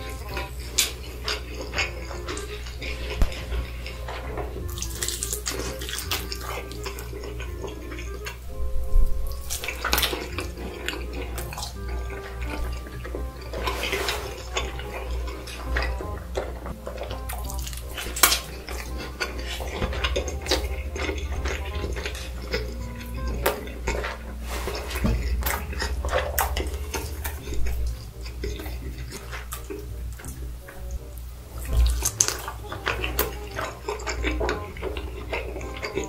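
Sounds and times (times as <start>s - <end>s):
wet chewing and lip-smacking: 0.0s - 36.0s
meat being pulled apart: 0.3s - 8.4s.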